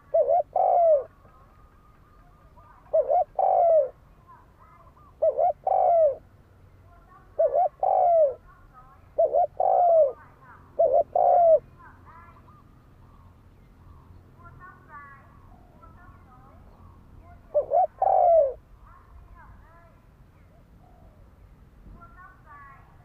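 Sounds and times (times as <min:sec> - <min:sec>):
dove cooing: 0:00.0 - 0:01.5, 0:02.4 - 0:04.0, 0:04.6 - 0:06.3, 0:07.2 - 0:11.7, 0:17.4 - 0:18.6.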